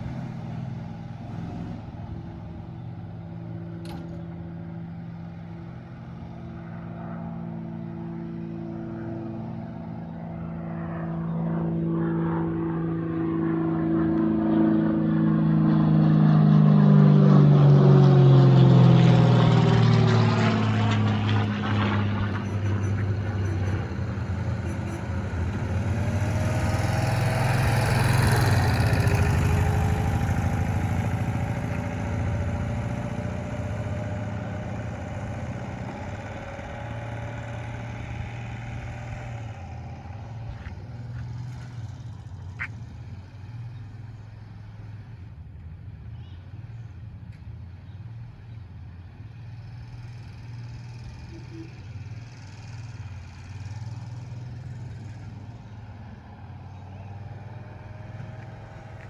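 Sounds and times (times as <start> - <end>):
small vehicle engine driving: 0.0 - 59.0.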